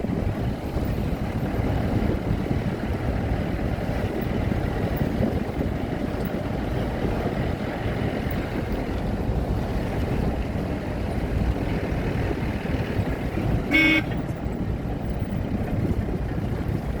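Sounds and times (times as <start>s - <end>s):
steady low rumble: 0.0s - 17.0s
short horn toot: 13.6s - 14.2s.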